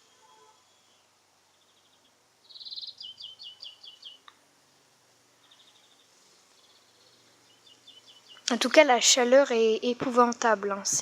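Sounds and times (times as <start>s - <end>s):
low steady hiss: 0.0s - 11.0s
songbird trill and falling notes: 0.6s - 4.3s, 5.4s - 9.3s.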